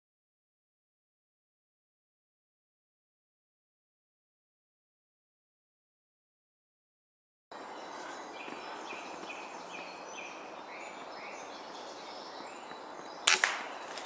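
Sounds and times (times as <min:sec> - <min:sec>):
songbird chirping: 0:07.5 - 0:14.0
steady outdoor hiss: 0:07.5 - 0:14.0
air rifle shot: 0:13.3 - 0:14.0.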